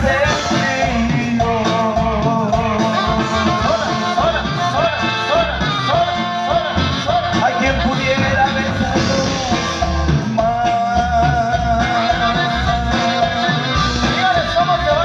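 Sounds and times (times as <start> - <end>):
live band music: 0.0 - 15.0
person singing: 0.0 - 15.0
steady bass beat: 7.1 - 12.3.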